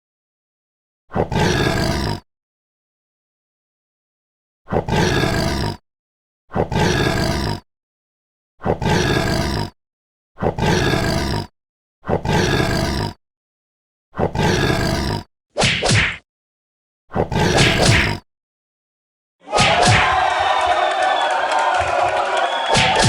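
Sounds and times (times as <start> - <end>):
big cat roaring: 1.1 - 2.2, 4.7 - 5.8, 6.5 - 7.6, 8.6 - 9.8, 10.4 - 13.2.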